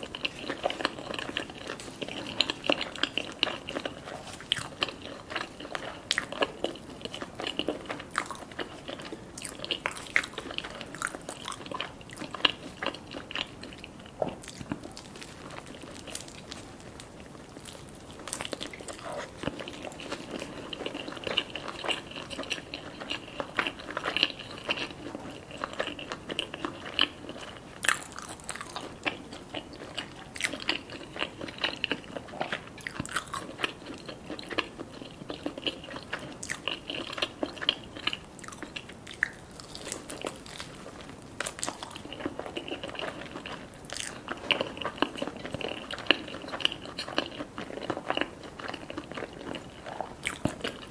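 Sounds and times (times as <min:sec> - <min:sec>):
biting and crunching: 0:00.0 - 0:50.9
wet chewing: 0:00.0 - 0:50.9.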